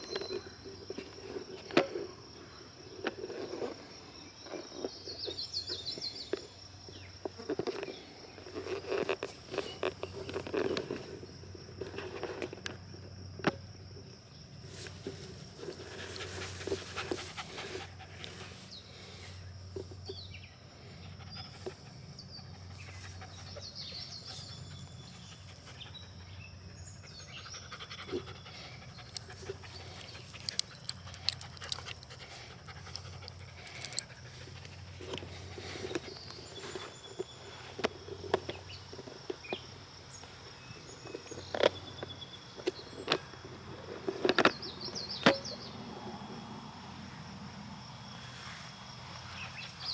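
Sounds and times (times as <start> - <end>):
dog panting: 16.2 - 18.3, 21.1 - 34.9.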